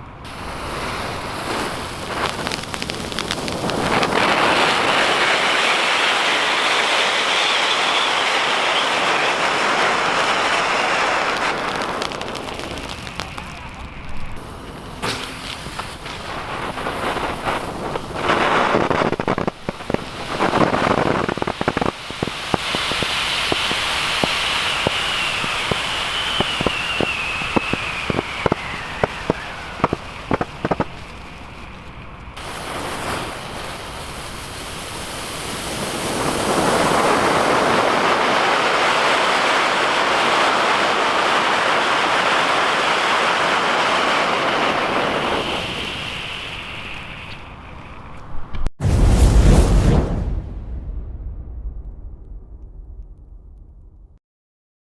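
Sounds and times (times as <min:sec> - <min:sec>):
firework fountain hissing: 0:00.2 - 0:48.2
crackling pops: 0:00.2 - 0:48.7
falling whistling tone: 0:22.5 - 0:31.0.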